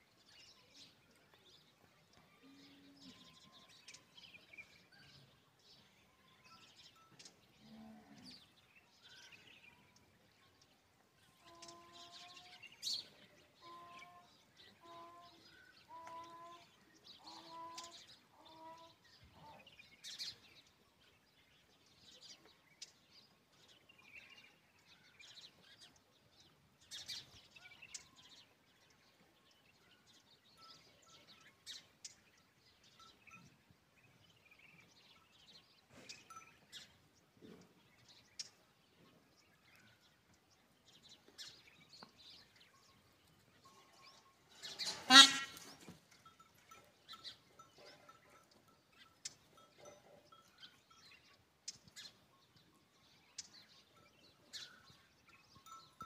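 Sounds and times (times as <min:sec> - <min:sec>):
short bird calls: 0:44.8 - 0:45.7.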